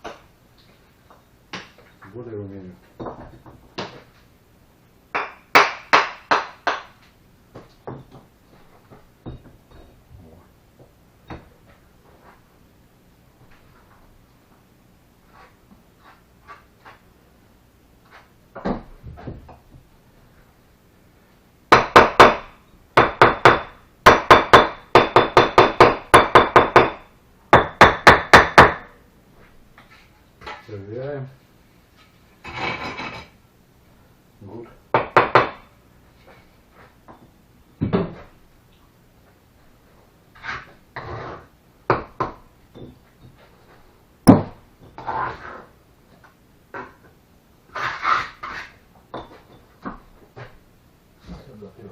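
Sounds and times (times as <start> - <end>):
trowel scraping through mortar: 40.4 - 41.5, 47.7 - 48.8.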